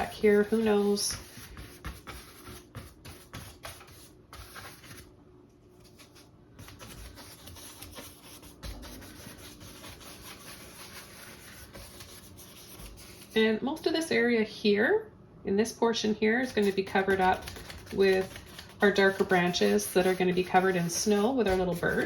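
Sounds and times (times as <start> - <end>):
paintbrush scratching on canvas: 0.0 - 5.0, 6.6 - 13.4, 16.5 - 22.0.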